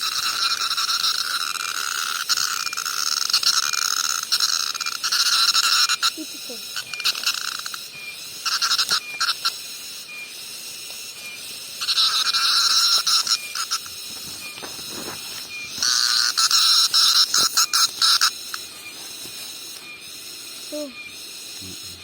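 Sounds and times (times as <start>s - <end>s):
cicada calling: 0.0s - 22.0s
faint steady high tone: 18.6s - 22.0s.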